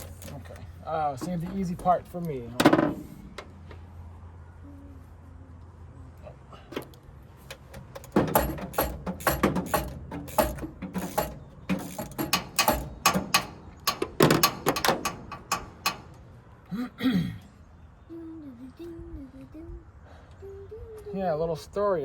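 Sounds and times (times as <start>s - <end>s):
ratchet wrench clicking: 0.0s - 0.6s, 7.5s - 16.2s.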